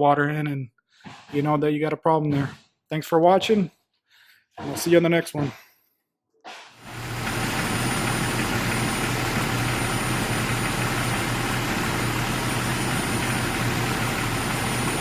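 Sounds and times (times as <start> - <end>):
car engine idling: 6.8 - 15.0.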